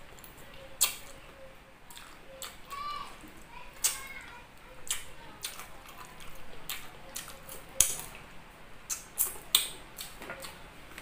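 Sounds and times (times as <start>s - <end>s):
person chewing with lip smacks: 0.8s - 1.2s, 1.9s - 2.6s, 4.8s - 8.2s, 8.9s - 11.0s.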